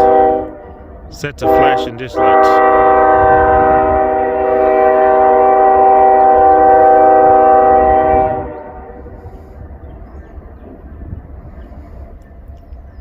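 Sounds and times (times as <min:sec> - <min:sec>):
locomotive air horn: 0:00.0 - 0:09.6
train rumble: 0:00.0 - 0:13.0.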